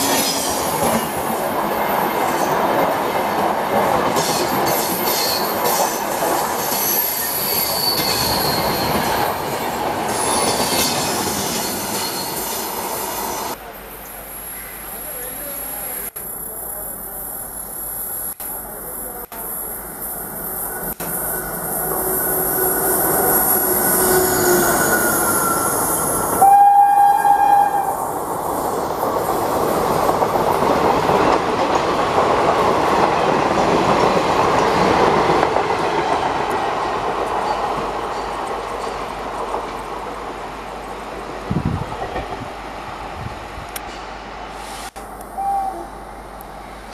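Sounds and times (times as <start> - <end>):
locomotive horn blast: 26.4 - 28.0.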